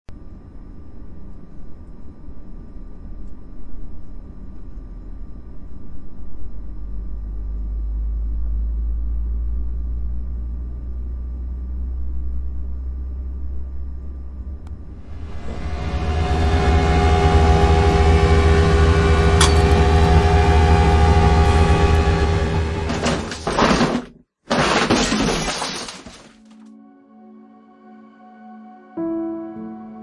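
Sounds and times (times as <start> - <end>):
low rumble: 6.6 - 23.7
faint high-pitched tones: 14.7 - 23.4.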